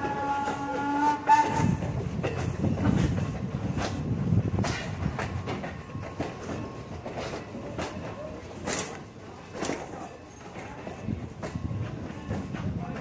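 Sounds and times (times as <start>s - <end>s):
steam locomotive whistle: 0.0s - 2.0s
low train rumble: 0.0s - 13.0s
train wheels clanking over rail joints: 0.0s - 13.0s.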